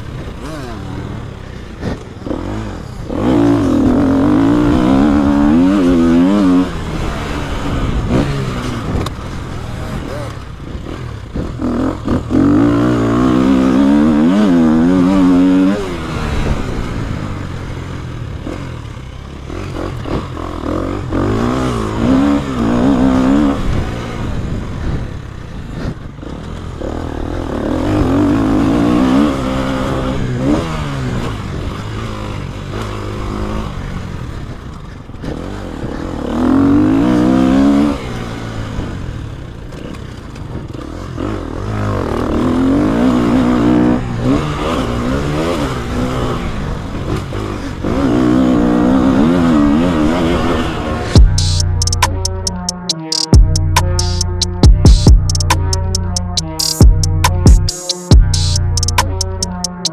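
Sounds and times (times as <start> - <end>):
dirt bike engine revving: 0.0 - 34.6, 35.2 - 59.9.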